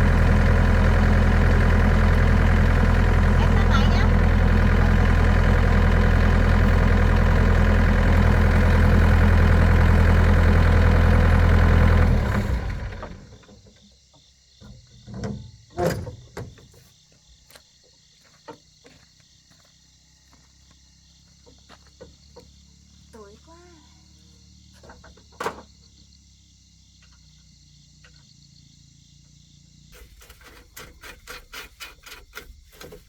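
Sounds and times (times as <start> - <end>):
diesel engine idling: 0.0 - 13.4.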